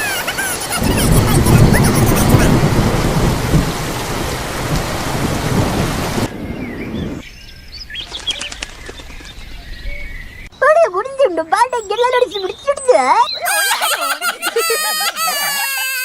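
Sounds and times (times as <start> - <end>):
heavy rain: 0.0 - 7.2
rumbling thunder: 0.7 - 7.2.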